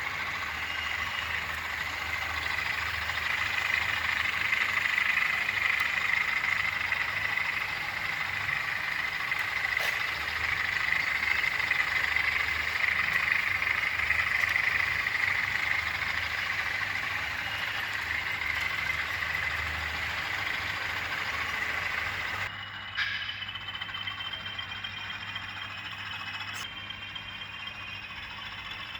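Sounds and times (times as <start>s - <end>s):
constant high whine: 0.0s - 28.9s
diesel locomotive engine rumble: 0.0s - 28.9s.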